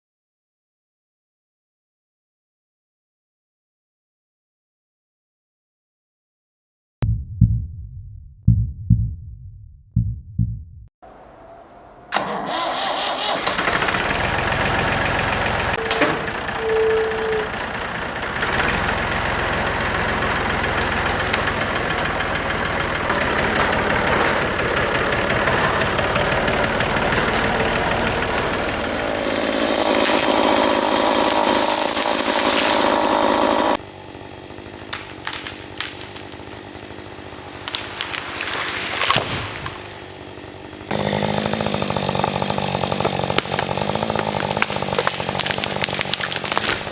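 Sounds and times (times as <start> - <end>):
engine running loudly: 12.1 - 46.8
knocks and clatter: 18.4 - 28.9.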